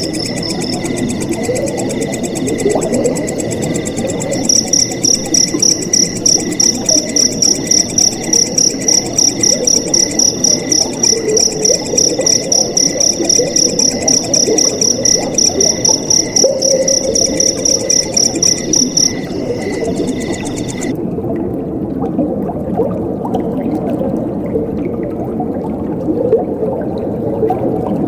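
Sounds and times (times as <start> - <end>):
crickets chirping: 0.0 - 20.9.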